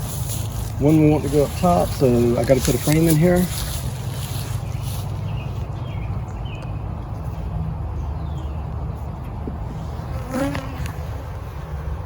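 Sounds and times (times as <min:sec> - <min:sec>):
honeybees buzzing: 0:07.7 - 0:12.0.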